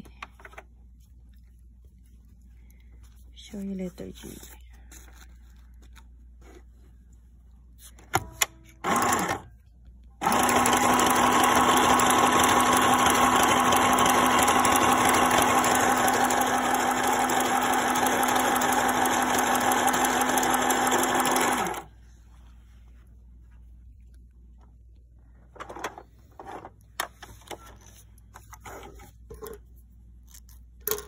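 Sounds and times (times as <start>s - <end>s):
sewing machine motor humming: 8.8s - 9.4s, 10.2s - 21.9s
sewing machine clicks: 10.2s - 21.9s.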